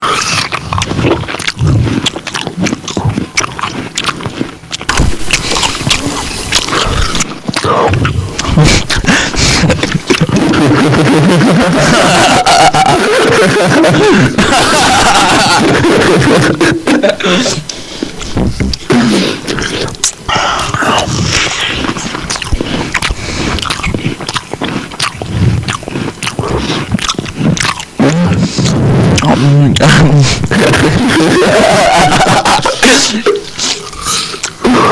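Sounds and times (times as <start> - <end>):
crisp mouth clicks: 0.0 - 11.4, 17.5 - 31.0, 33.4 - 34.6
person chewing and biting: 0.0 - 34.9.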